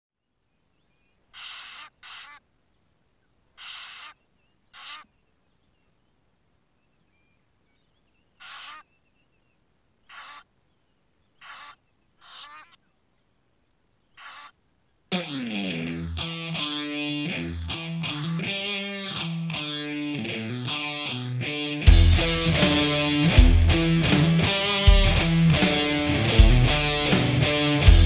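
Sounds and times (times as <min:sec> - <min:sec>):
small birds chirping faintly: 0:00.2 - 0:21.8
large bird calling loudly: 0:01.3 - 0:02.6, 0:03.5 - 0:05.4, 0:07.2 - 0:10.5, 0:11.2 - 0:12.9, 0:14.0 - 0:20.9.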